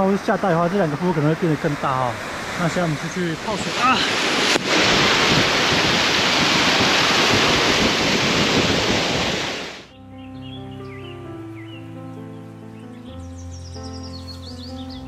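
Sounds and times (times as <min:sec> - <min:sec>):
waterfall roaring: 0:00.0 - 0:09.9
quiet music: 0:09.9 - 0:15.0.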